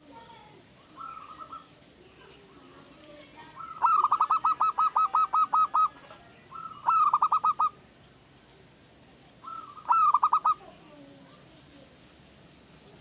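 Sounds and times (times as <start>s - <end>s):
dove cooing: 0.9s - 1.8s, 3.5s - 7.8s, 9.4s - 11.4s.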